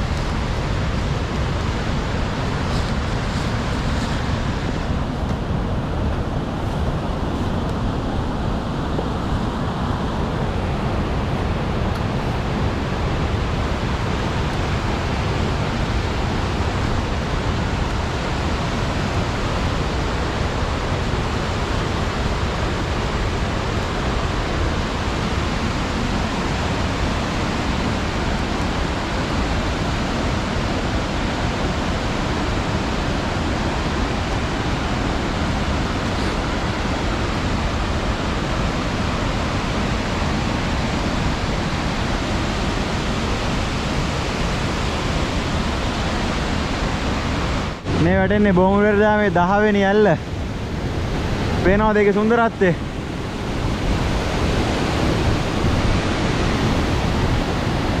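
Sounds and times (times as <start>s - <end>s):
waterfall rushing water: 0.0s - 58.0s.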